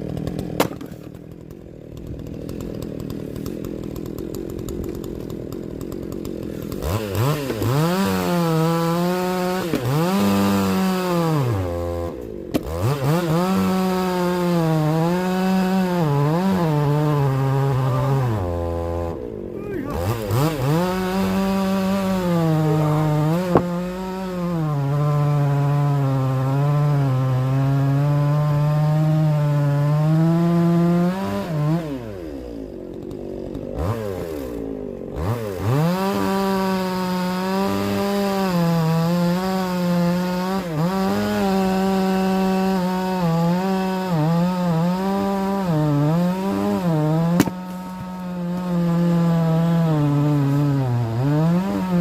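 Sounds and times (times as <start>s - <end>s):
chainsaw cutting firewood: 0.0s - 52.0s
sharp knocks: 23.3s - 23.8s, 47.3s - 48.2s.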